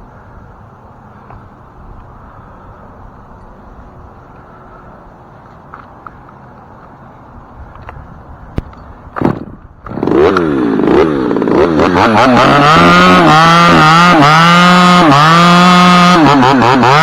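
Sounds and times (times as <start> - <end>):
chainsaw revving: 9.2 - 17.0.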